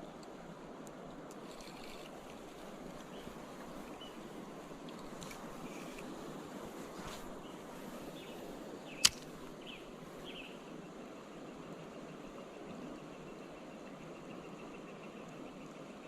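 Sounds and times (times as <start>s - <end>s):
creek water rushing: 0.0s - 11.1s
sharp click: 9.0s - 9.3s.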